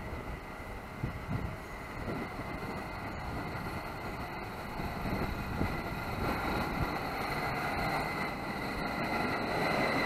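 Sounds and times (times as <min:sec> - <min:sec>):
train rumbling on track: 0:00.0 - 0:10.0.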